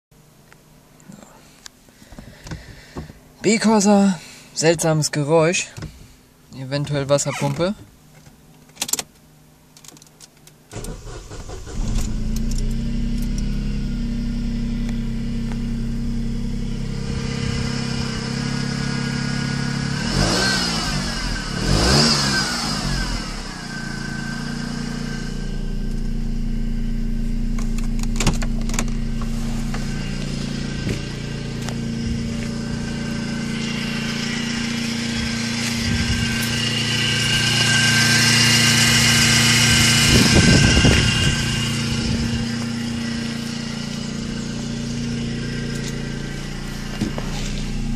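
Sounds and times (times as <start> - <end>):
car engine starting and idling: 0.2 - 47.9
engine revving: 10.7 - 47.9
high whine: 22.8 - 47.9.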